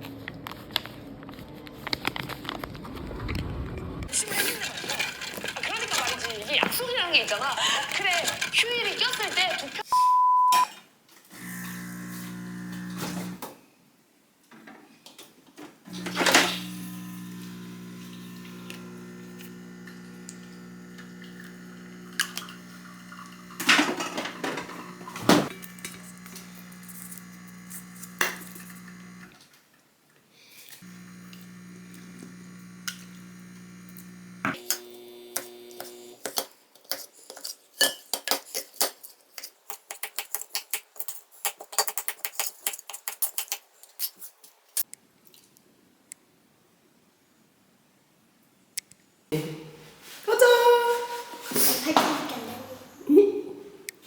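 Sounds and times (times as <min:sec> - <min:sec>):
electric appliance hum: 0:04.1 - 0:09.9, 0:11.3 - 0:13.5, 0:15.9 - 0:29.4, 0:30.8 - 0:36.2.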